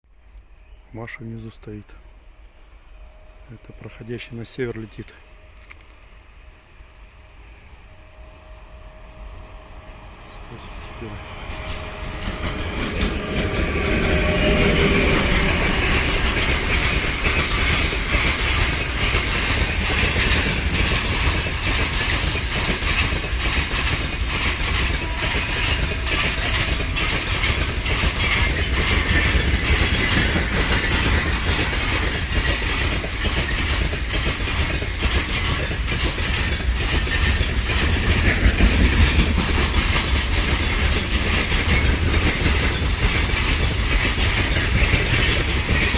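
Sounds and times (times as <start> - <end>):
freight train passing: 0.1 - 45.9
wheels clattering over rail joints: 11.6 - 45.9.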